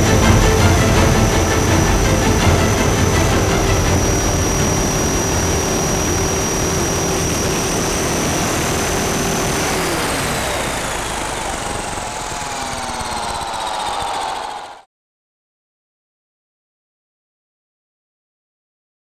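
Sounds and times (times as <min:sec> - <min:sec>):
electric motor whine: 0:00.0 - 0:14.8
helicopter rotor noise: 0:00.0 - 0:14.9.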